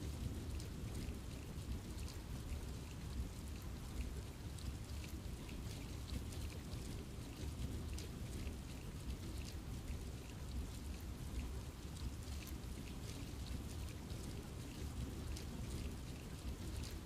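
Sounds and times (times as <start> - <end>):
low rumbling rain wash: 0.0 - 17.0
rain drops ticking on leaves: 0.0 - 17.0.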